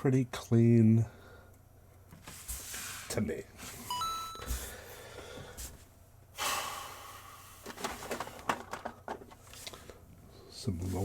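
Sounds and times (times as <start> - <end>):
person breathing heavily: 4.5 - 5.8, 6.4 - 7.8.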